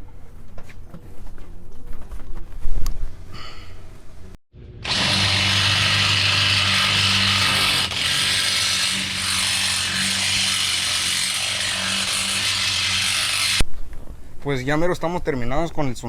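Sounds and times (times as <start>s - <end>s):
electric drill running under load: 4.8s - 13.6s.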